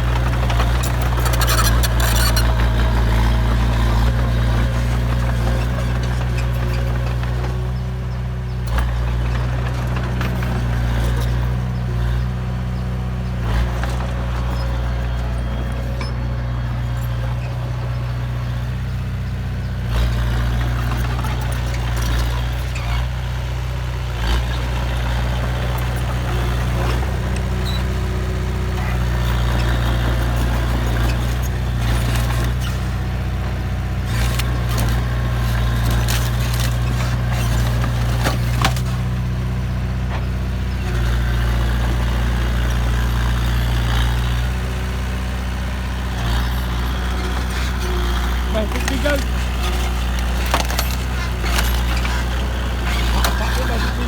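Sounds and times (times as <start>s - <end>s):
heavy diesel engine running: 0.0s - 54.0s
knocks and clanks: 48.5s - 54.0s.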